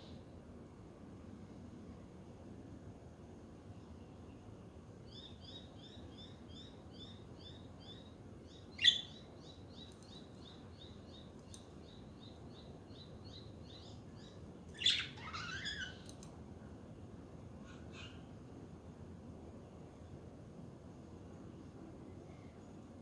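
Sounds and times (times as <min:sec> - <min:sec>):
budgerigars chirping: 0:08.8 - 0:09.2, 0:14.8 - 0:16.0.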